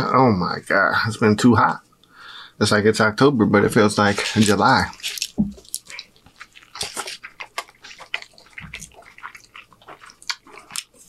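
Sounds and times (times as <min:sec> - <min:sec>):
chewing and mouth sounds: 0:04.0 - 0:11.0.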